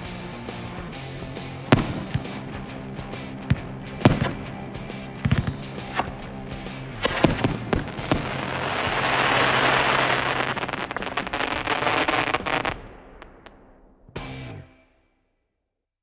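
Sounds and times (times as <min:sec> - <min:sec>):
firework crackling: 0:01.4 - 0:13.8
firework bangs: 0:01.7 - 0:14.1.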